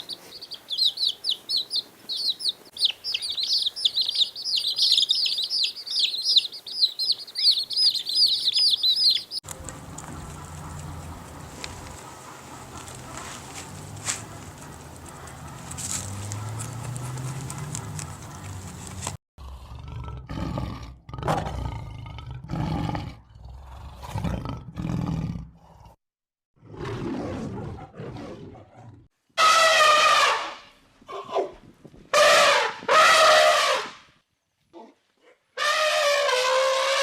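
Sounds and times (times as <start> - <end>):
large animal roaring: 19.4 - 25.9.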